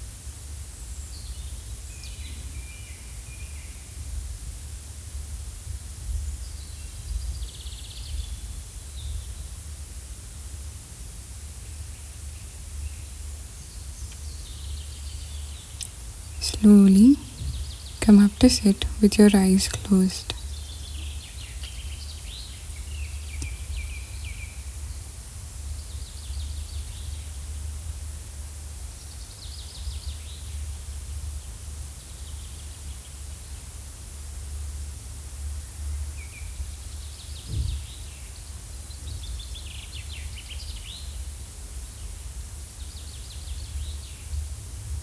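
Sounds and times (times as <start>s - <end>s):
small birds chirping: 14.0s - 25.0s.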